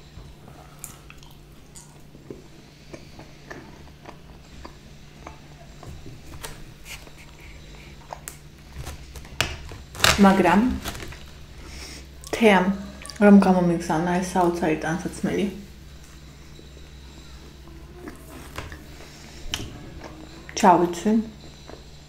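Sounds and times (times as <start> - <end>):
faint low hum: 0.0 - 22.0
chewing with wet mouth clicks: 0.8 - 5.9, 21.4 - 22.0.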